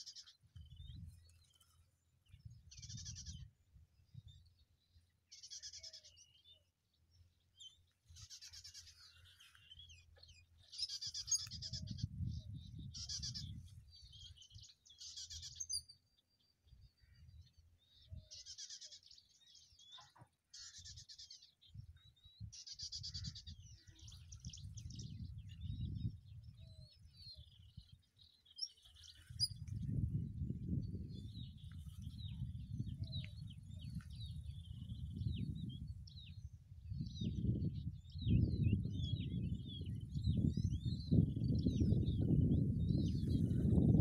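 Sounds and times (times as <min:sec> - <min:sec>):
small birds chattering: 0:07.6 - 0:13.6.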